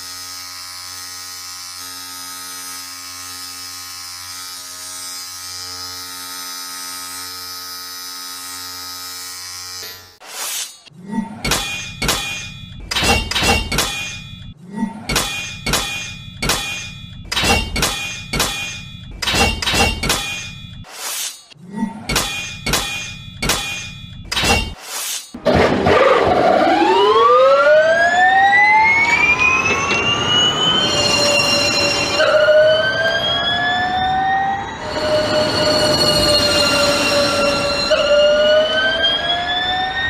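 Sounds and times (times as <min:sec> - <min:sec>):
swords clashing: 0:09.8 - 0:25.4
racing car engine rising: 0:25.4 - 0:40.0.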